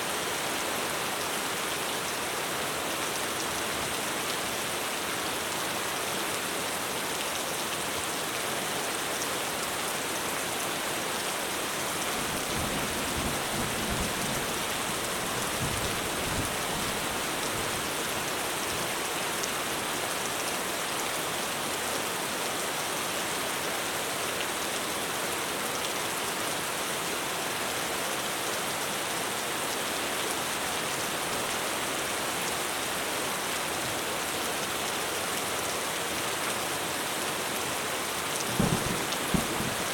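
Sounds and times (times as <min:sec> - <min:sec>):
heavy rain on a roof: 0:00.0 - 0:39.9
distant thunder rumble: 0:38.5 - 0:39.9.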